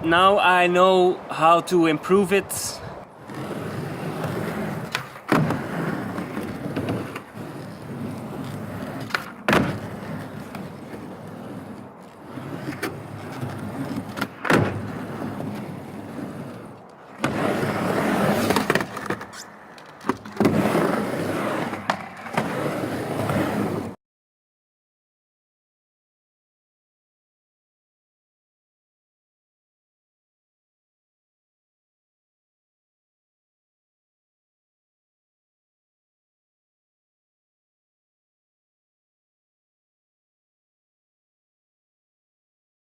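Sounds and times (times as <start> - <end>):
skateboard wheels rolling on ramp: 0.0 - 24.0
skateboard clacking on ramp: 4.2 - 7.6, 8.3 - 11.8, 12.5 - 23.8.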